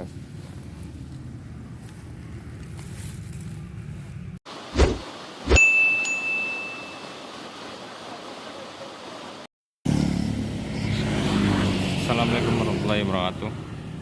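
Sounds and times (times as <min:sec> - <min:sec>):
high ringing ding: 0:05.6 - 0:07.2.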